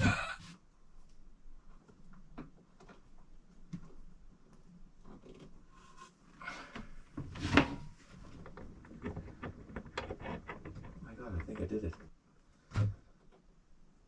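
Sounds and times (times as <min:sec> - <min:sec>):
small clicks and knocks: 0:07.6 - 0:12.2.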